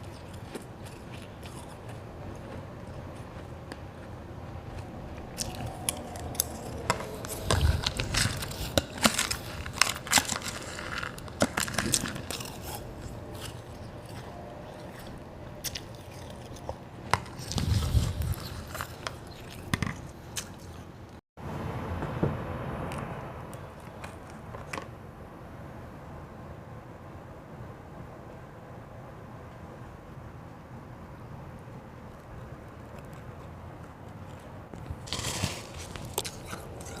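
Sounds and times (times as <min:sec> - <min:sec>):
person crunching ice: 0:00.0 - 0:20.9, 0:34.1 - 0:37.0.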